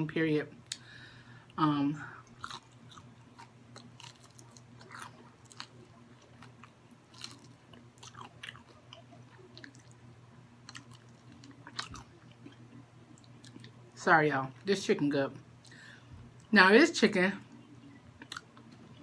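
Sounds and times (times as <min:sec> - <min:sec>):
faint low hum: 0:00.0 - 0:19.0
person chewing crunchy food: 0:02.2 - 0:13.8.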